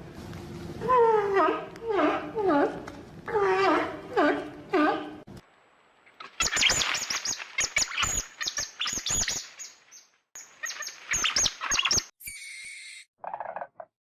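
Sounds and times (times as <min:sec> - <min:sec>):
bird chirping rapidly: 0:06.4 - 0:12.9.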